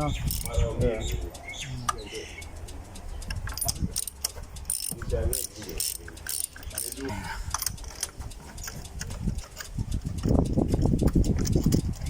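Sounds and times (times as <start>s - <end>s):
muffled words: 0.0s - 2.6s, 5.0s - 7.5s
metallic clicks of hand tools: 0.0s - 12.0s.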